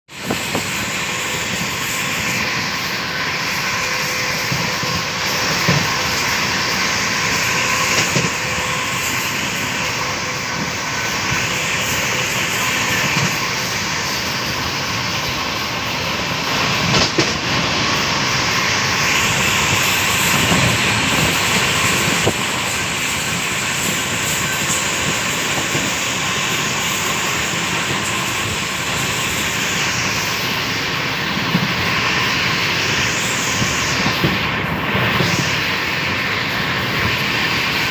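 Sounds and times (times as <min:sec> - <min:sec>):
train wind and wheel noise: 0:00.1 - 0:37.9.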